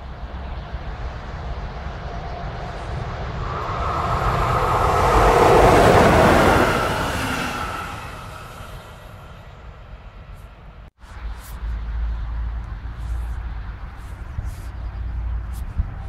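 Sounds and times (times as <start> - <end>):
train passing at speed: 0.0 - 10.9.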